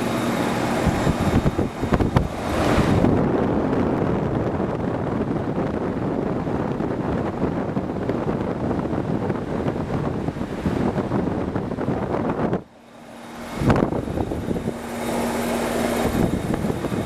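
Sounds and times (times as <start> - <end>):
compressor running: 0.0 - 17.0
condenser fan blowing air: 0.0 - 17.0.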